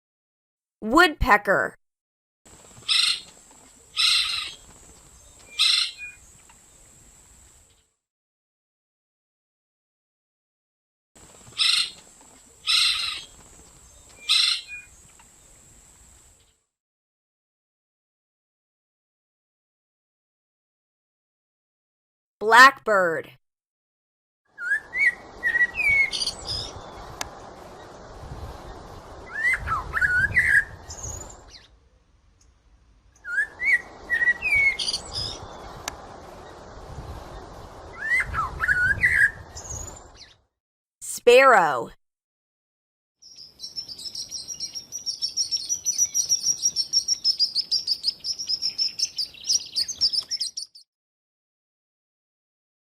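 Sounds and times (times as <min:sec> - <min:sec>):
woodpecker rasping calls: 0:02.9 - 0:03.3, 0:04.0 - 0:04.6
blackbird singing: 0:24.6 - 0:26.9, 0:33.2 - 0:35.6, 0:43.2 - 0:50.8.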